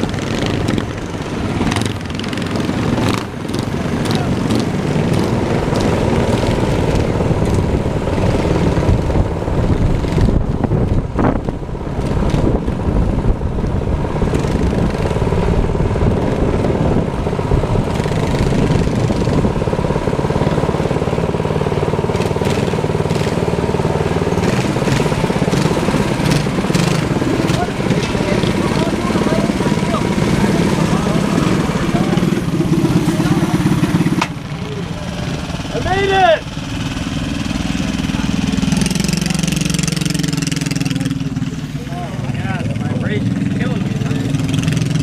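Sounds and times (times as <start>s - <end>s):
minibike engine running: 0.0s - 45.0s.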